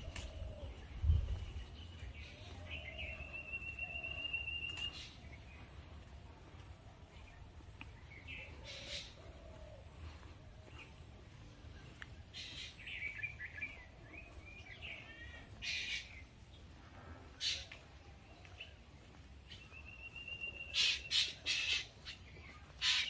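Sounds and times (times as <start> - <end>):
constant high hiss: 0.0 - 23.0
birds calling: 7.2 - 18.8, 19.4 - 23.0.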